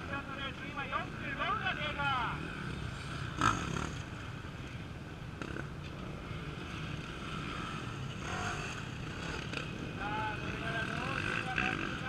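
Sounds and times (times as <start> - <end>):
distant motorcycle engines rumbling: 0.0 - 12.0
motorcycle engine revving: 2.2 - 4.4, 5.3 - 12.0.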